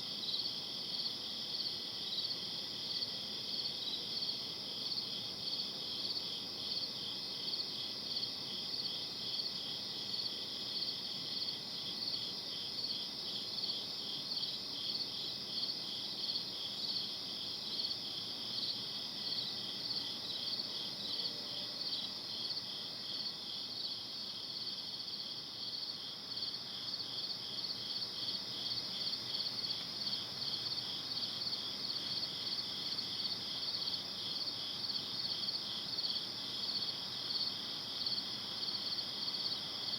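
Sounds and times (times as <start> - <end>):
crickets chirping: 0.0 - 39.9
faint background hiss: 0.0 - 39.9.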